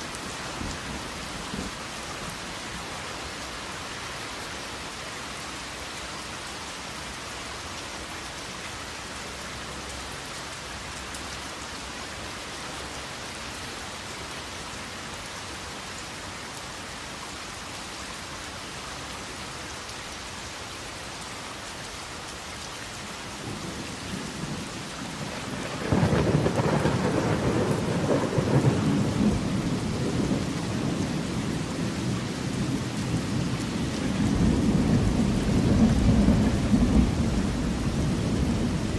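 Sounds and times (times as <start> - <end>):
heavy rain: 0.0 - 38.9
thunder rumble: 24.4 - 31.9.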